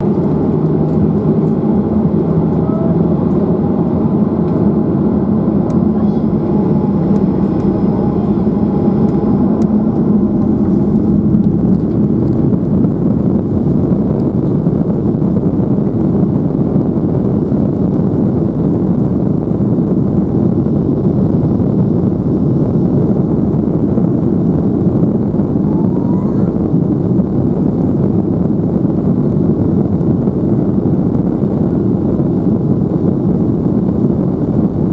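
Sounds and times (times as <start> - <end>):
faint steady tones: 0.0 - 12.0
jet engines roaring: 0.0 - 34.9.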